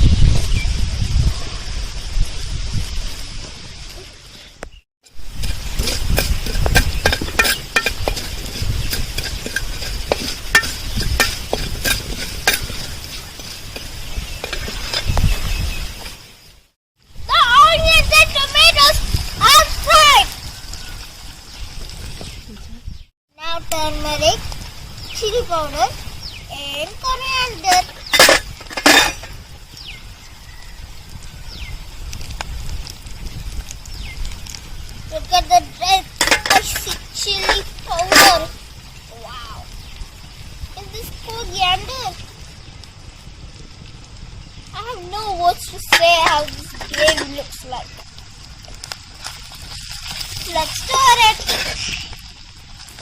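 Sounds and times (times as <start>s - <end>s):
scraping or rustling bursts: 0.0s - 22.2s, 24.0s - 29.6s, 32.2s - 38.9s, 44.8s - 48.4s, 49.0s - 53.0s
spices sizzling and popping in oil: 2.0s - 53.0s
spoon stirring: 5.3s - 15.1s.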